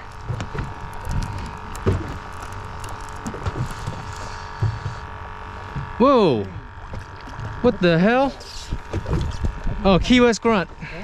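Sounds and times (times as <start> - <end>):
boat engine hum: 0.0 - 11.0
low knocks and thumps: 3.2 - 6.0.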